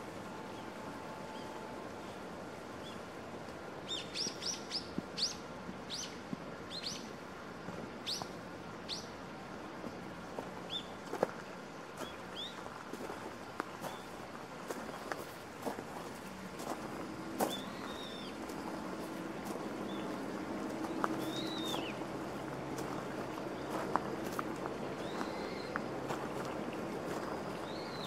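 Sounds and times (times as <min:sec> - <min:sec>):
outdoor background noise: 0:00.0 - 0:28.0
songbird chirping: 0:16.6 - 0:28.0.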